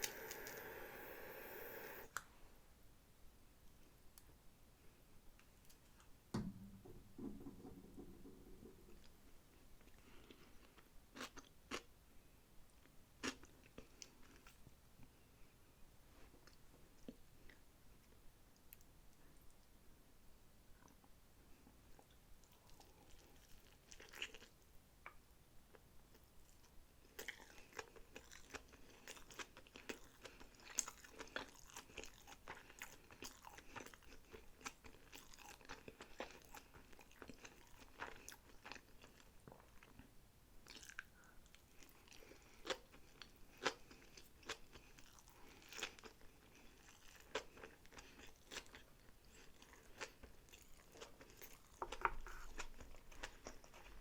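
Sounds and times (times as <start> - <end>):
wet chewing and crunching: 22.0 - 24.6, 25.7 - 40.0, 40.6 - 54.0.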